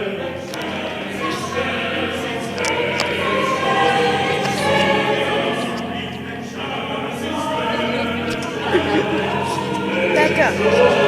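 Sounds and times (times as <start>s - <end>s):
choir singing: 0.0s - 11.0s.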